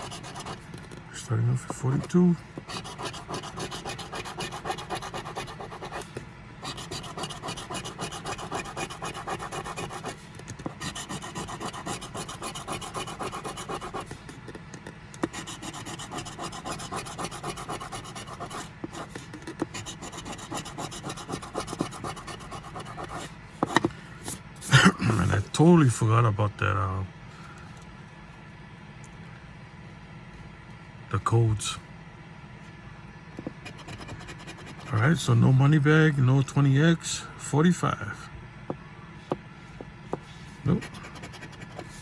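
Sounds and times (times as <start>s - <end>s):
scratching lottery ticket: 0.0s - 24.4s, 33.6s - 35.5s, 40.2s - 42.0s.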